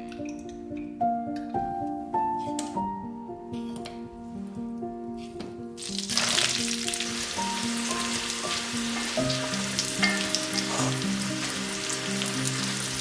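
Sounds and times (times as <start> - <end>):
soft background music: 0.0 - 13.0
pasta sizzling in frying pan: 5.8 - 13.0.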